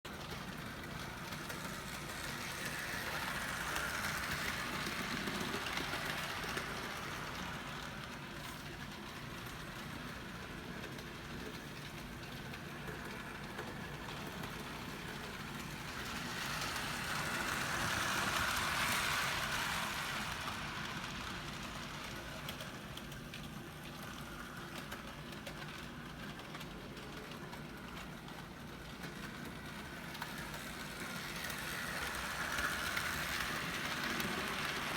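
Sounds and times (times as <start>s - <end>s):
model train running on track: 0.1s - 34.9s.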